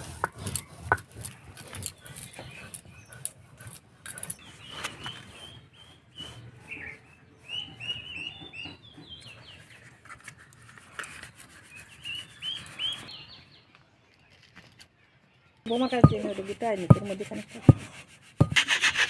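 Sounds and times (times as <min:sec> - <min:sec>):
small birds chirping: 0:00.0 - 0:17.8
soft knocks and rubbing: 0:15.9 - 0:18.6.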